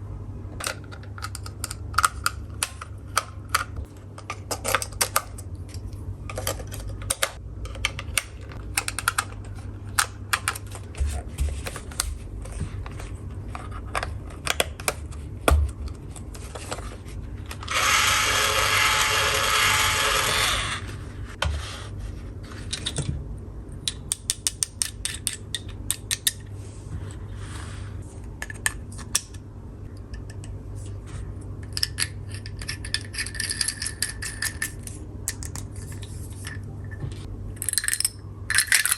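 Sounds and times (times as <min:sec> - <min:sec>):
toy electric drill whirring: 0:17.6 - 0:20.9
plastic toy pieces clicking: 0:23.9 - 0:26.4, 0:37.6 - 0:38.9.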